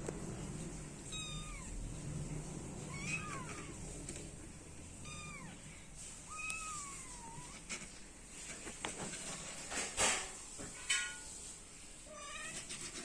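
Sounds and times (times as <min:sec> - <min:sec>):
kittens meowing: 0:01.1 - 0:01.8, 0:02.9 - 0:03.8, 0:05.0 - 0:05.7.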